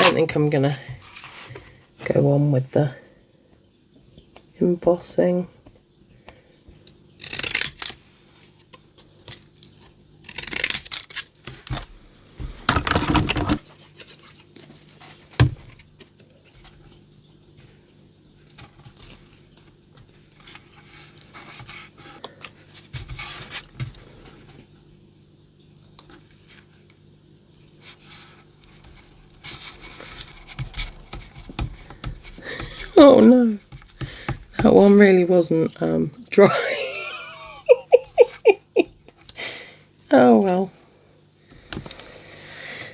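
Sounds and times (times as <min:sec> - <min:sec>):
small clicks and scrapes: 0:07.2 - 0:11.9.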